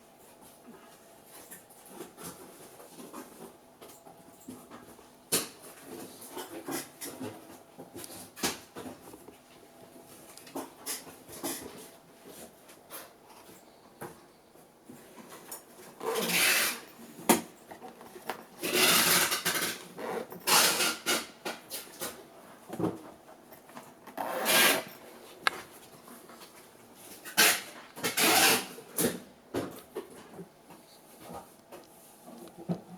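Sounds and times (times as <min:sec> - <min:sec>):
folding chair scraping and rustling: 0:15.1 - 0:17.3, 0:18.6 - 0:21.3, 0:23.8 - 0:30.3.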